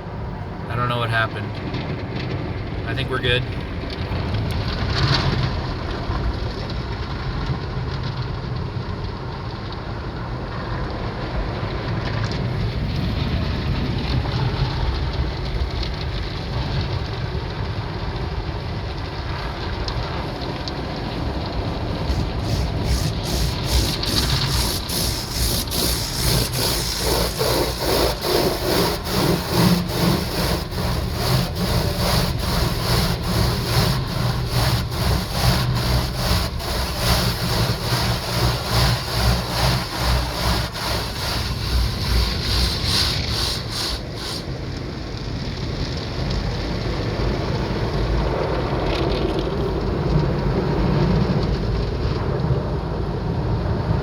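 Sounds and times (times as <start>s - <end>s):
car wash machinery rumble: 0.0s - 54.0s
car wash brushes slapping: 21.1s - 44.6s
water spray hissing: 21.9s - 44.5s.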